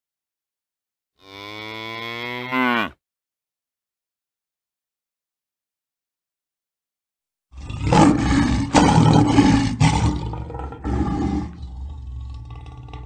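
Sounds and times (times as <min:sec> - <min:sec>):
lion roaring: 0:07.5 - 0:13.0.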